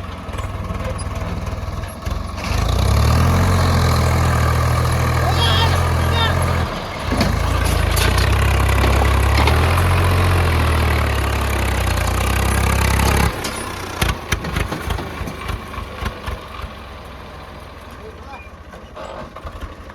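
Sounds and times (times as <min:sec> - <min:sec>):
diesel engine droning: 0:00.0 - 0:19.9
knocks and thuds: 0:07.1 - 0:09.8.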